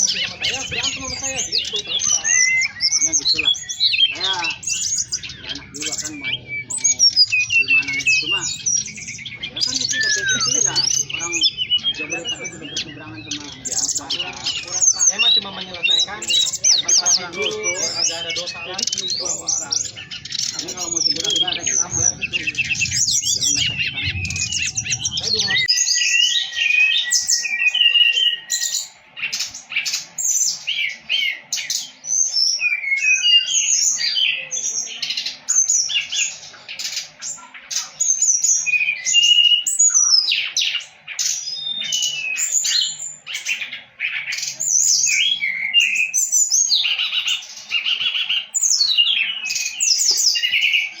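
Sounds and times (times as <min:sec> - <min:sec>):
bird singing chirps and trills: 0:00.0 - 0:51.0
long held bird whistle: 0:01.6 - 0:12.7, 0:22.2 - 0:29.0, 0:38.3 - 0:40.5.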